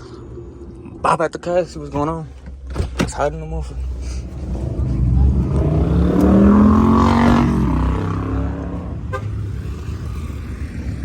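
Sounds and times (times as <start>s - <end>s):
traffic noise: 0.0s - 11.0s
car engine revving: 3.8s - 11.0s.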